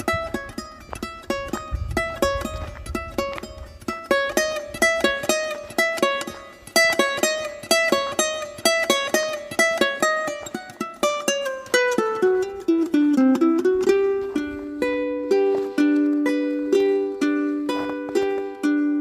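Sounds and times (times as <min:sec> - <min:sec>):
plucked ukulele-like music: 0:00.0 - 0:19.0.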